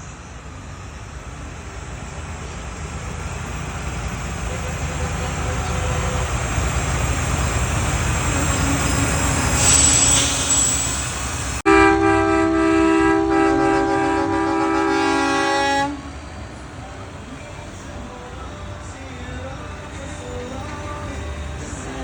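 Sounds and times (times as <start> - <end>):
truck traffic rumble: 0.0 - 22.0
truck air horn blast: 4.5 - 6.4, 11.7 - 16.2.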